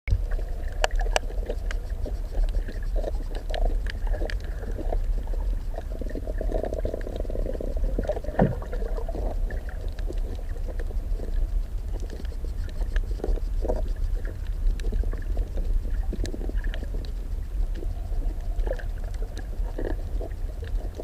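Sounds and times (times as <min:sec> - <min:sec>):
underwater rumble of water: 0:00.1 - 0:21.0
soft water sloshing: 0:00.3 - 0:11.4.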